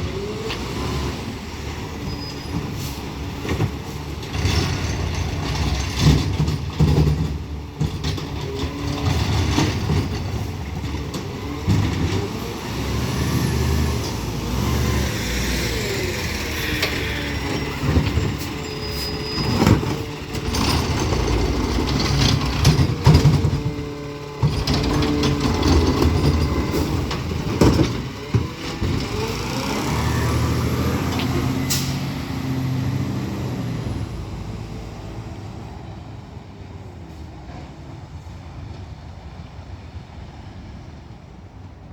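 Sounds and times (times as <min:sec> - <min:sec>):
diesel engine revving: 0:00.0 - 0:06.9, 0:07.5 - 0:36.1
metal clanks and knocks: 0:03.4 - 0:12.4, 0:16.4 - 0:29.2.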